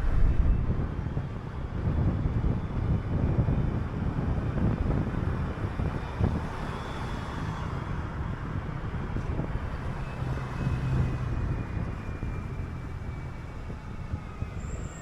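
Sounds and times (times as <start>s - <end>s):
bus engine and road rumble: 0.0s - 15.0s
low engine hum: 0.0s - 15.0s.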